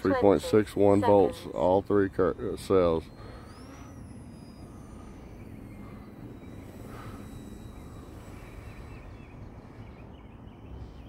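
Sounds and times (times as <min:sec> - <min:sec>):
electric motor and propeller whine: 0:00.0 - 0:11.0
faint bird chirps: 0:00.0 - 0:11.0.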